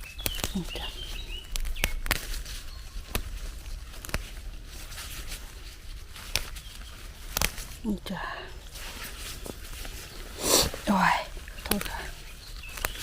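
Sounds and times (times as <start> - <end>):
sharp clicks and snaps: 0.0 - 4.4, 6.2 - 7.8, 11.5 - 13.0
faint rustling: 0.0 - 13.0.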